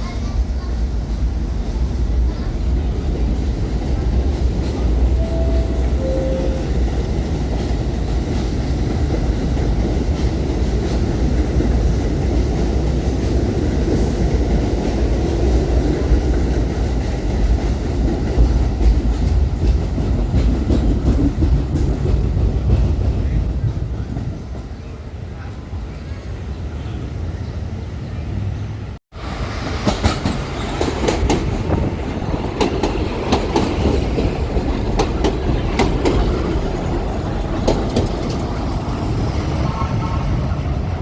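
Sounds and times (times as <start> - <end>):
subway train wheels rumbling on rail: 0.0 - 41.0
short tones: 5.2 - 7.2.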